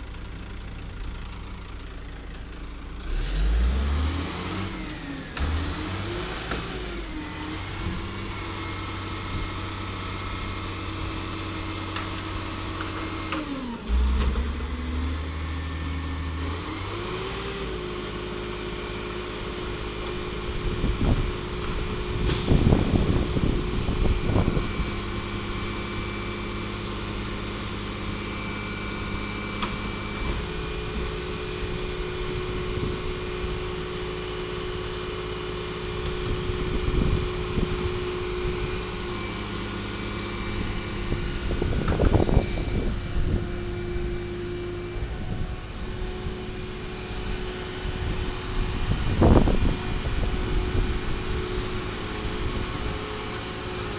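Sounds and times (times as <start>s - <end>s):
garbage truck engine running: 0.0s - 53.9s
air brake hiss: 22.2s - 23.2s.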